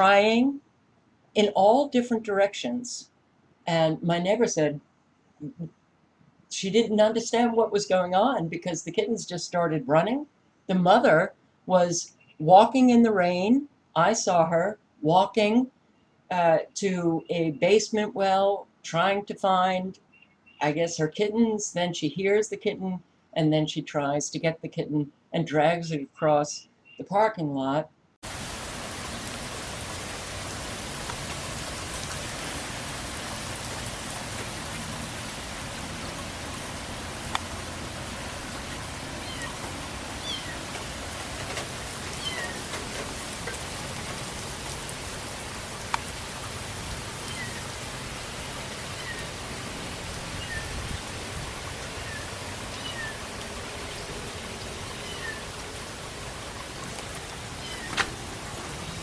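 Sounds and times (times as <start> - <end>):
steady rain: 28.2 - 59.0.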